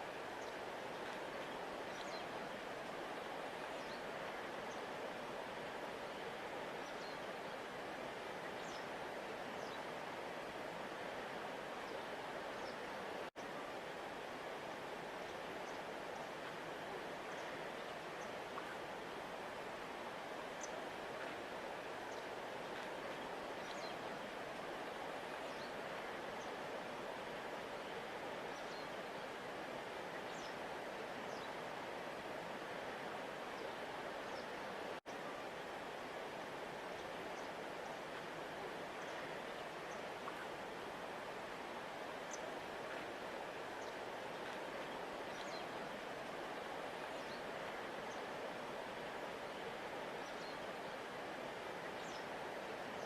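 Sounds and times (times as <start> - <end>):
river rushing: 0.0 - 53.0.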